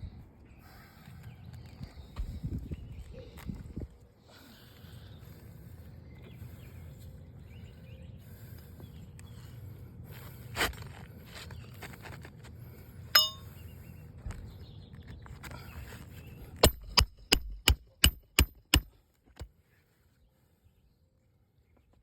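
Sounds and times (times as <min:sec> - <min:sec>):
metallic clink: 0:13.2 - 0:13.5
hammer striking nail: 0:16.6 - 0:19.5.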